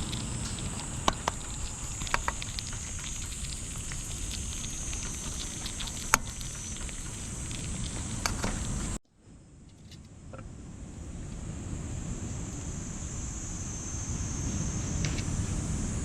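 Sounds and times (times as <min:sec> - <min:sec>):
campfire crackling and popping: 0:00.0 - 0:09.0
steady outdoor hiss: 0:00.0 - 0:16.0.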